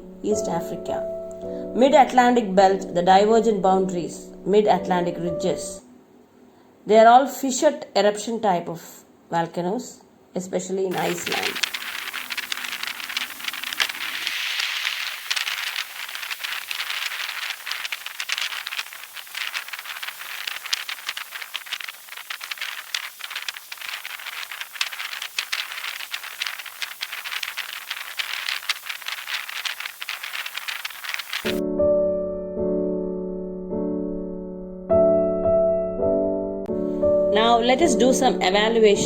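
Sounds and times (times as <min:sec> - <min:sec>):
crackling and rattling clicks: 0:10.9 - 0:31.6
steady hiss: 0:10.9 - 0:31.6.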